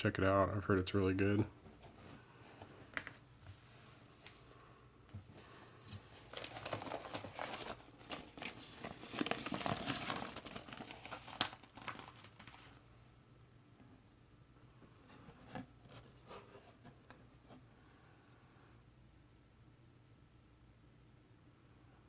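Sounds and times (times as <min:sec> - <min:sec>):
packaging crinkling and rustling: 0:05.3 - 0:12.8.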